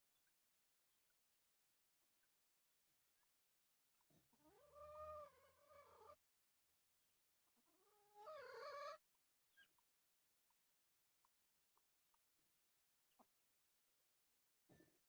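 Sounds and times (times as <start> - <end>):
long animal calls: 4.4 - 6.2, 7.6 - 9.0.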